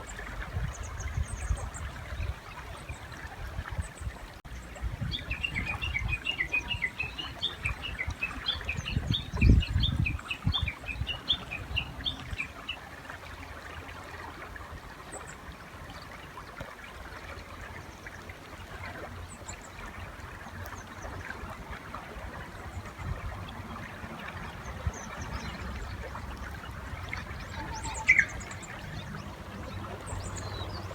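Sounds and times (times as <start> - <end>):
river noise: 0.0 - 30.9
warbler chirping rapidly: 27.4 - 29.3.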